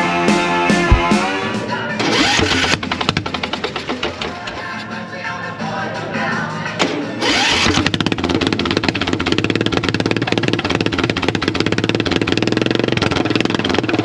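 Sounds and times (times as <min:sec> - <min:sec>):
small engine idling with pops: 0:02.4 - 0:04.4, 0:07.6 - 0:14.0.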